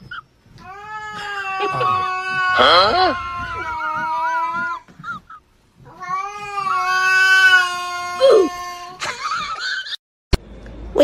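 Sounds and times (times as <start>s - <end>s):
cat yowling: 0.6s - 9.0s.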